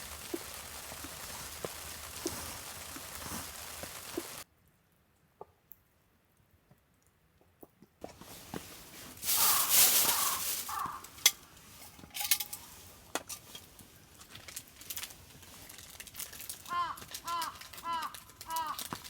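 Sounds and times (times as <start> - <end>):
hissing rush: 0.0 - 4.4, 9.1 - 11.6
small hard objects clicking: 0.0 - 4.4, 9.2 - 19.0.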